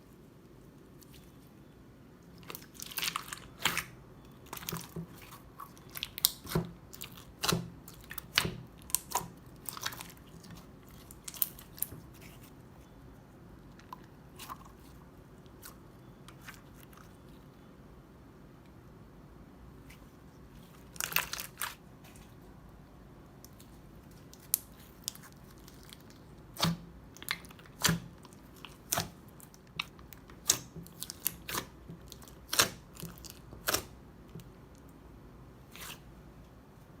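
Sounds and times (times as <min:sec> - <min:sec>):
crunchy slime crackling: 0:02.2 - 0:13.0, 0:20.6 - 0:22.4, 0:23.4 - 0:34.8.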